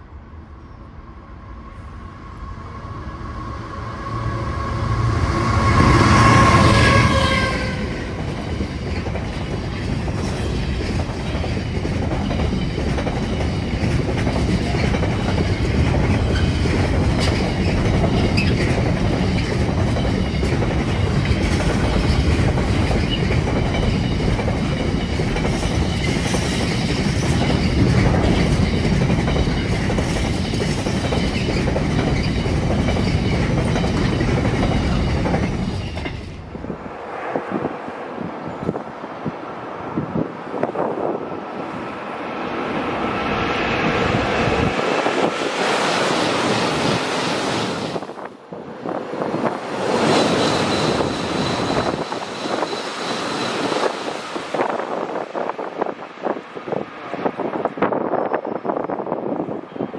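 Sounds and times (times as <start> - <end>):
freight train horn: 1.7 - 8.2
train wheels clickety-clack: 5.4 - 36.5, 49.2 - 58.0.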